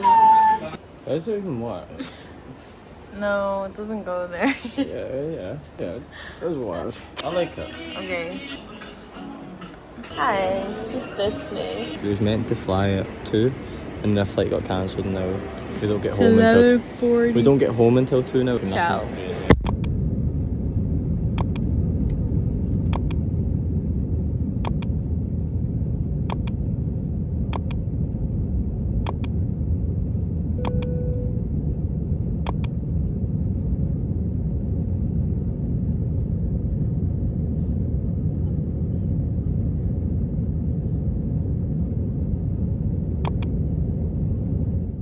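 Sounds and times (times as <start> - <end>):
vehicle interior rumble: 10.2 - 45.0
faint click: 22.9 - 23.2, 26.3 - 26.6, 30.6 - 30.9, 32.5 - 32.7, 43.3 - 43.5
brief beep: 30.6 - 31.4.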